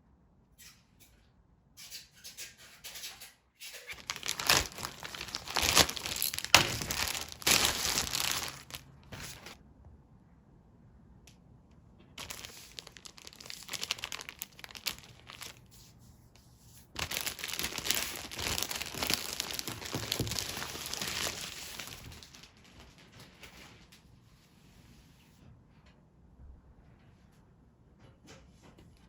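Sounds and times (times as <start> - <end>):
packaging crinkling and tearing: 3.9 - 9.6, 12.2 - 15.7, 17.0 - 23.6.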